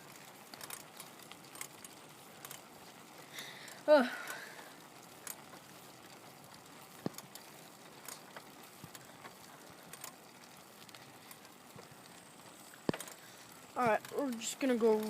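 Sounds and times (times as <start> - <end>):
bicycle clicks and taps: 0.0 - 3.0, 6.9 - 15.0
low steady hiss: 0.0 - 15.0.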